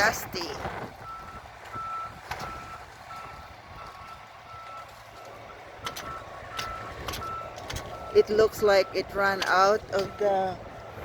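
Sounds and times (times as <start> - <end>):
wind on microphone: 0.0 - 4.6
truck reverse alarm beeping: 0.0 - 11.0.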